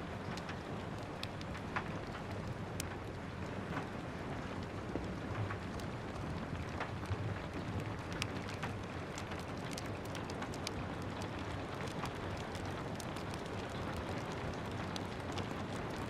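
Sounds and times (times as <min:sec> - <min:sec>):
rain hiss: 0:00.0 - 0:16.0
wood fire crackling: 0:00.0 - 0:16.0.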